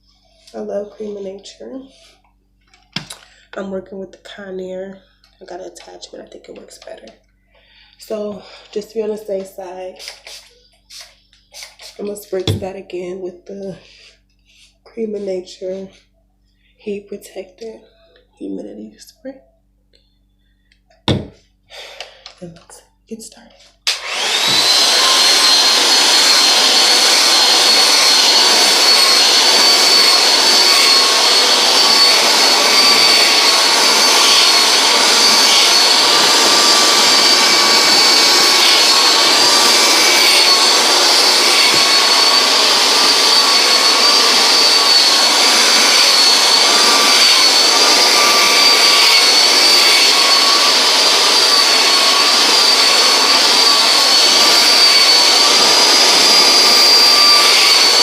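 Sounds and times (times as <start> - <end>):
hair dryer running: 7.8 - 16.0, 21.0 - 22.7, 23.8 - 58.0.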